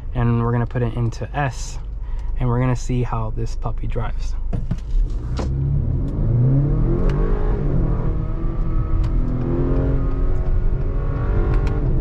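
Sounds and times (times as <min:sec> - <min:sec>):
car engine accelerating: 0:04.9 - 0:12.0.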